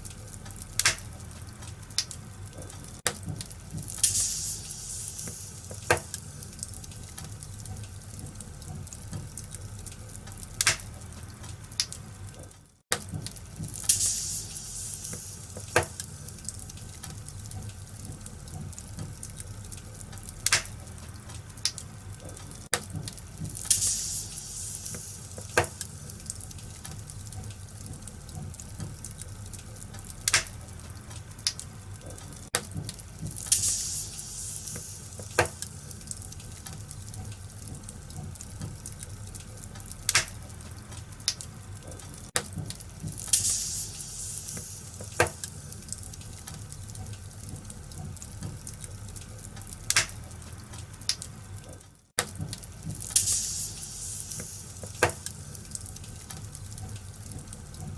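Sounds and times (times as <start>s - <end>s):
sharp pops of fire: 0.0s - 51.4s, 52.2s - 57.7s
wood fire crackling: 0.0s - 57.9s
high hissing: 53.2s - 54.9s.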